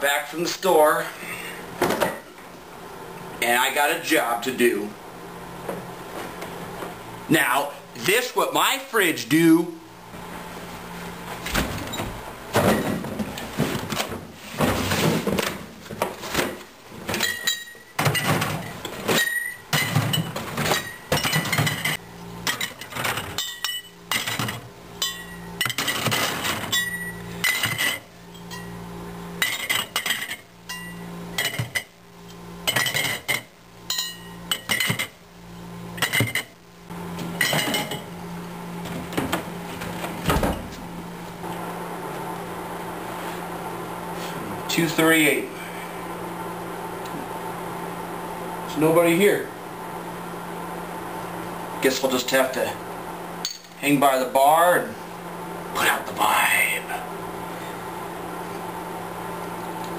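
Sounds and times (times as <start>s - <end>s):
beer bottles clinking: 17.1s - 28.8s, 32.7s - 35.1s, 37.3s - 38.2s.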